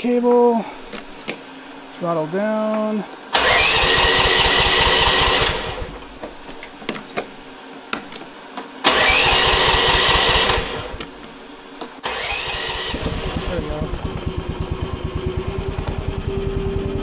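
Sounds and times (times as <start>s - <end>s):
clicks: 0.8s - 1.4s, 5.4s - 8.7s, 10.4s - 12.1s
engine cranking with starter whine: 3.3s - 17.0s.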